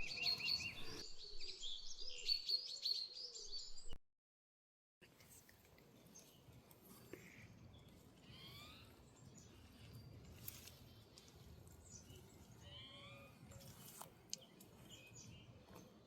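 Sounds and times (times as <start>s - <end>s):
bird chirps: 0.0s - 4.0s, 7.2s - 16.0s.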